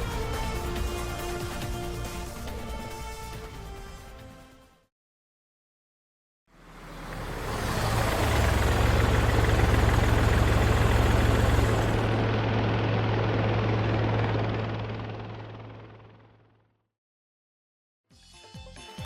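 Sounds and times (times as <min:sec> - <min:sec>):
helicopter rotor and engine: 0:00.0 - 0:04.6, 0:07.6 - 0:16.8.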